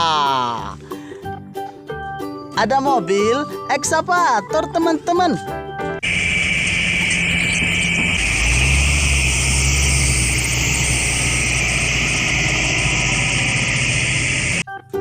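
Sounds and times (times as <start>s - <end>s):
excavator engine idling: 6.0s - 14.6s.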